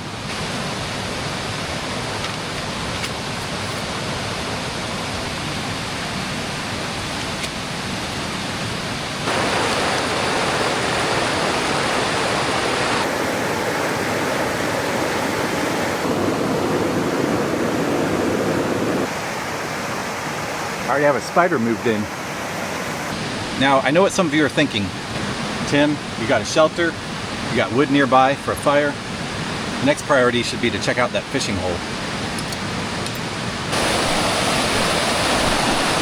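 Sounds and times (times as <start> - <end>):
creek water rushing: 0.0 - 23.8, 33.6 - 36.0.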